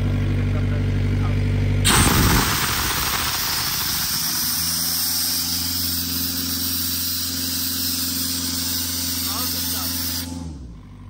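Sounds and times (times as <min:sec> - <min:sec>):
diesel engine running: 0:00.0 - 0:11.0
compressed air hissing: 0:01.9 - 0:10.4.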